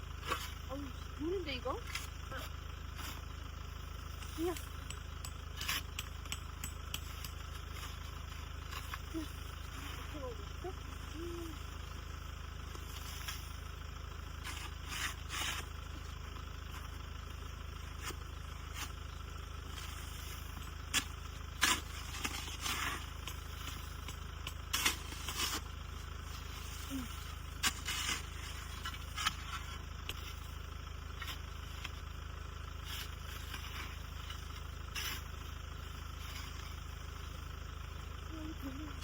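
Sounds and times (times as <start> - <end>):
steady low rumble: 0.0 - 39.0
snow shovel scraping snow: 1.9 - 3.3, 14.5 - 15.8, 19.8 - 24.0, 24.7 - 30.6, 32.8 - 36.8.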